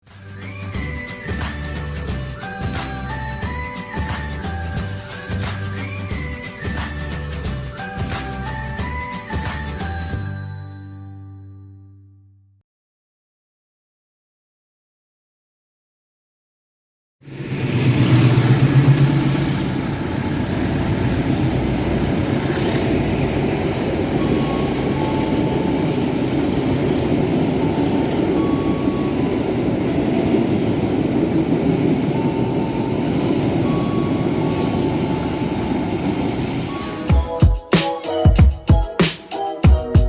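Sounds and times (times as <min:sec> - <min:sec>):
locomotive engine hum: 0:17.3 - 0:37.1
wheels rumbling on rails: 0:17.3 - 0:37.1.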